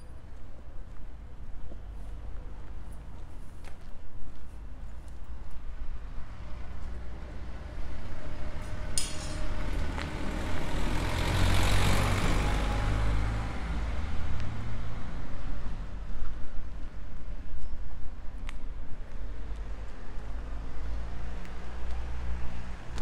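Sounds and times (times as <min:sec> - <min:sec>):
vehicle driving past: 0:06.9 - 0:15.9.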